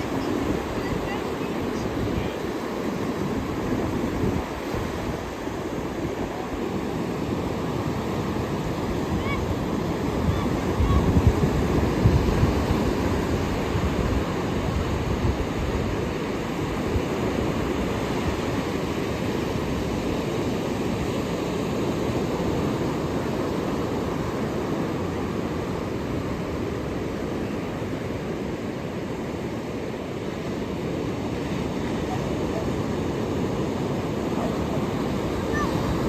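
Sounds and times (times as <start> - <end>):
ocean waves breaking: 0.0 - 36.0.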